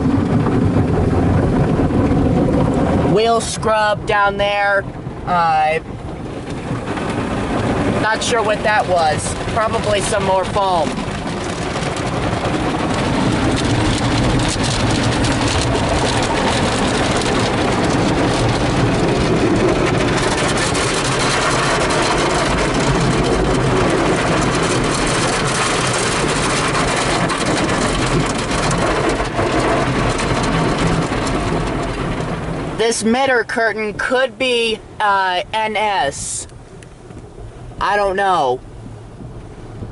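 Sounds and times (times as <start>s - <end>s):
car wash spraying water: 0.0s - 39.9s.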